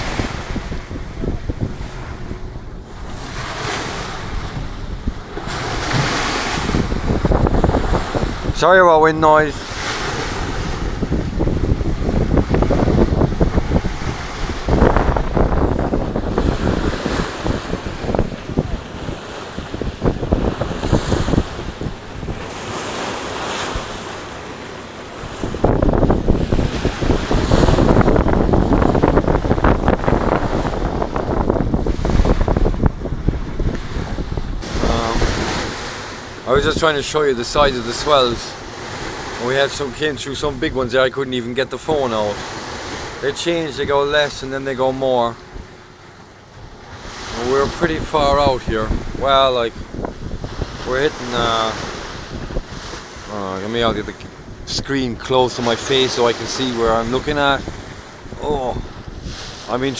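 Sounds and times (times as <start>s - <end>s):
waves against boat hull: 0.0s - 59.9s
wind buffeting microphone: 0.0s - 59.9s.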